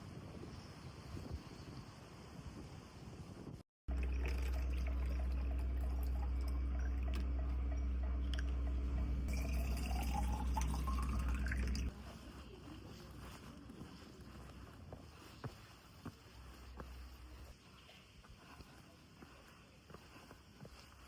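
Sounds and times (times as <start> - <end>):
water filling a bottle: 3.9 - 11.9.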